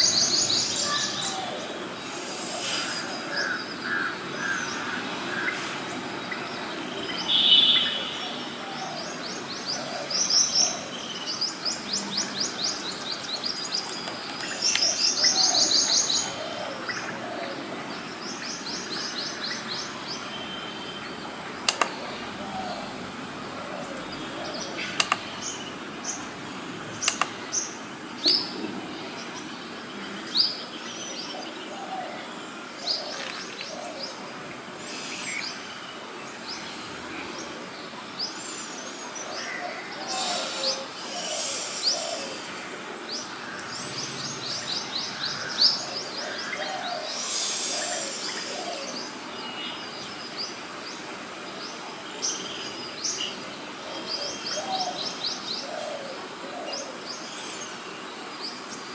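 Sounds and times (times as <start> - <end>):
birds chirping and calling: 0.0 - 58.9
sharp clicks: 21.6 - 22.0, 24.9 - 25.3, 27.0 - 27.4.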